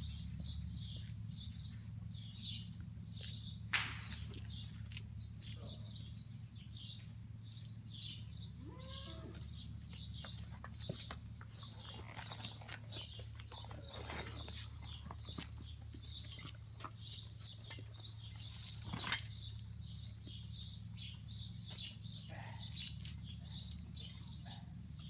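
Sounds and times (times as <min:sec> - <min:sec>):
small bird chirping: 0:00.0 - 0:25.0
steady low hum: 0:00.0 - 0:25.0
saddle and tack clinking: 0:10.0 - 0:25.0.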